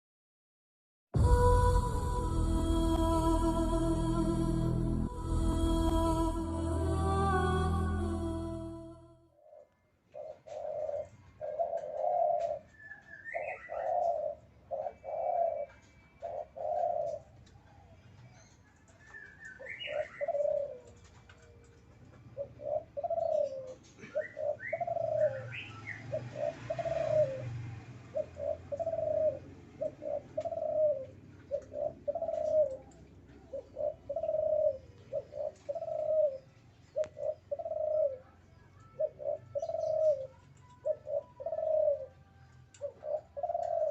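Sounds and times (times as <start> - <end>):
dove cooing: 9.4 - 18.3, 19.0 - 43.9
bird chirps: 12.2 - 17.3, 18.1 - 20.7, 33.5 - 43.9.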